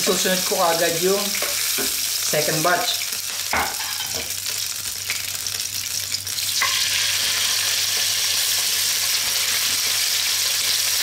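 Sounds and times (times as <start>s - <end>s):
oil sizzling in a frying pan: 0.0s - 11.0s.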